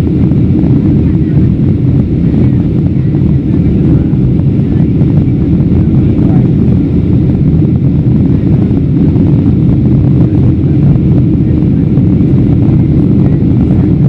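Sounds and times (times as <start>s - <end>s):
airplane cabin rumble: 0.0s - 14.0s.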